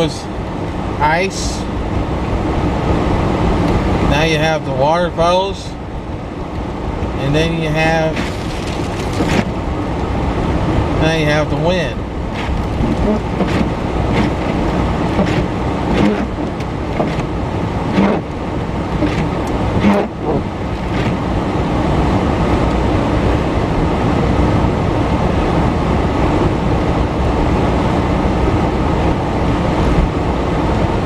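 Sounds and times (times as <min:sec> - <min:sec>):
tyre noise on wet road: 0:08.0 - 0:10.3, 0:12.1 - 0:24.0.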